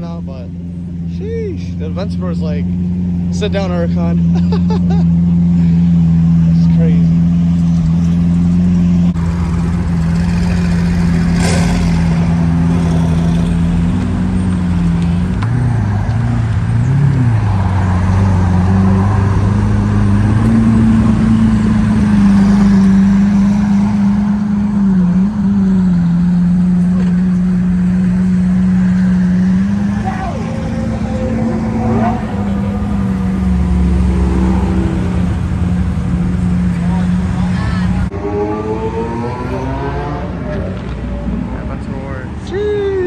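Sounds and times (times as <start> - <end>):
car engine idling loudly: 0.0 - 15.5.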